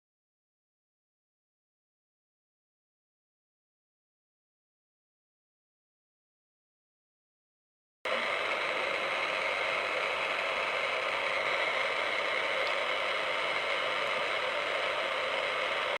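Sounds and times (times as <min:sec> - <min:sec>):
radio static hiss: 0:08.1 - 0:16.0.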